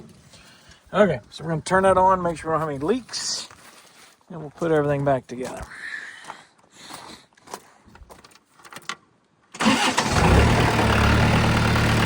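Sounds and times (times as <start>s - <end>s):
tractor engine starting and idling: 9.6s - 12.0s.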